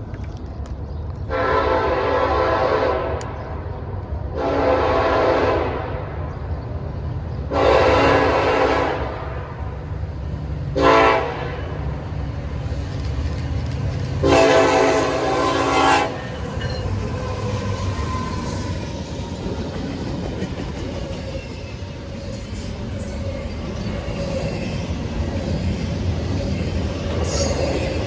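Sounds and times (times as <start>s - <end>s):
train rumbling past: 0.0s - 28.0s
locomotive air horn: 1.3s - 3.4s, 4.4s - 6.0s, 7.5s - 9.5s, 10.7s - 11.8s, 14.2s - 16.3s
train wheel clatter: 16.2s - 28.0s.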